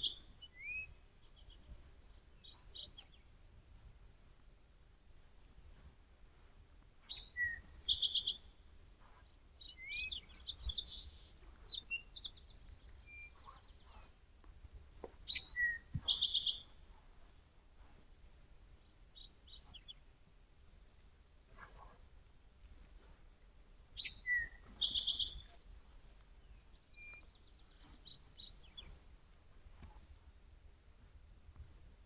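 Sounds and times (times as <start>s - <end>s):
other birds chirping: 15.1s - 16.8s, 24.0s - 29.0s
bird singing high phrase: 15.3s - 16.8s, 24.0s - 25.6s.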